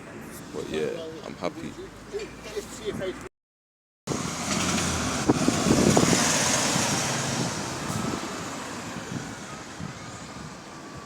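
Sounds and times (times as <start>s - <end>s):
vehicle driving past: 4.1s - 9.7s.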